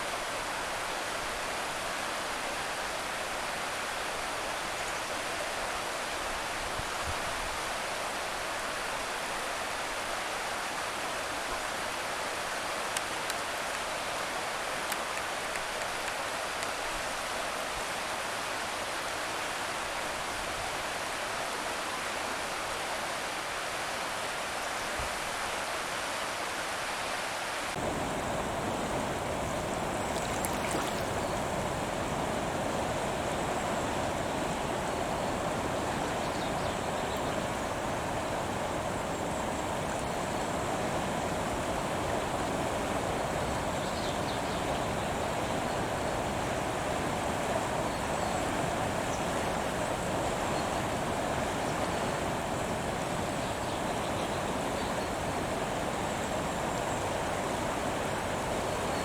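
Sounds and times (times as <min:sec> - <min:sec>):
steady rushing outdoor noise: 0:27.2 - 0:59.0.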